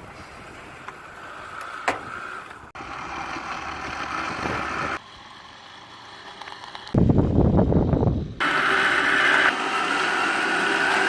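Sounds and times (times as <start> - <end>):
vacuum cleaner motor humming: 8.4 - 11.0.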